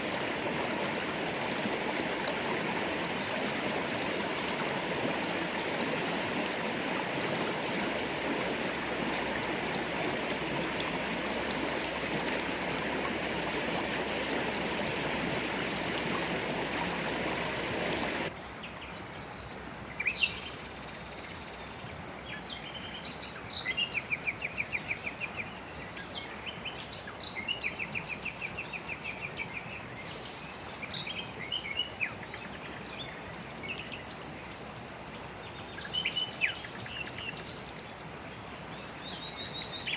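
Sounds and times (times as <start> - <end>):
river water rushing: 0.0 - 18.3
songbirds trilling and chirping: 4.2 - 39.9.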